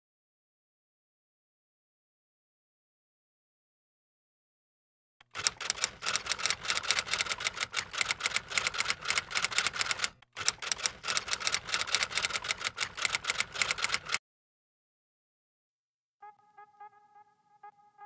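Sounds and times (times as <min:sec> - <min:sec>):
typewriter keys clacking: 0:05.2 - 0:14.2.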